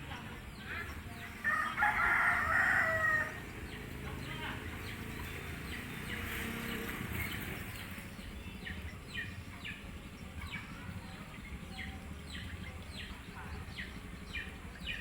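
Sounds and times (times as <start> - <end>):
small bird chirping: 3.0 - 15.0.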